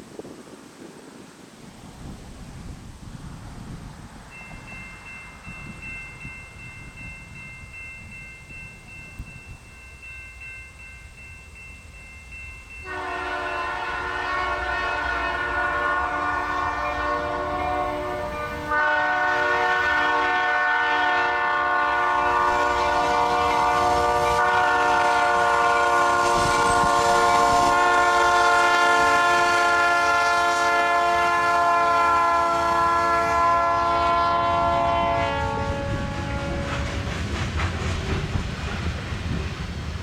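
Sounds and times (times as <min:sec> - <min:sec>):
passing train rumble: 0:01.7 - 0:40.0
train air horn blast: 0:12.8 - 0:37.0.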